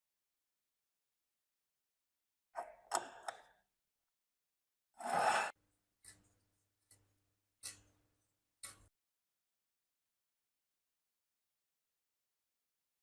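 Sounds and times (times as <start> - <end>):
metal scraping rasp: 5.0 - 6.2.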